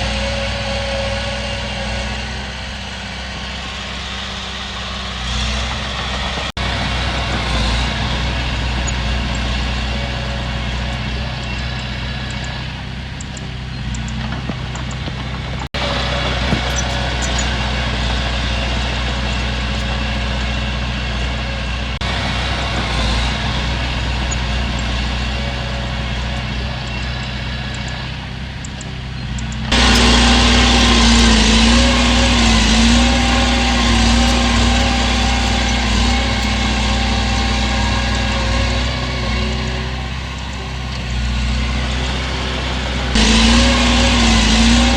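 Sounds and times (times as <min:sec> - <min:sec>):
diesel machinery engine hum: 0:00.0 - 0:44.9.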